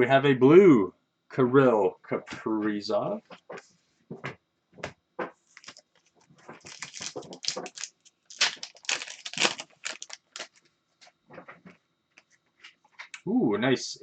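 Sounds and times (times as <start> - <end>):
wrapper crinkling: 5.5 - 10.7.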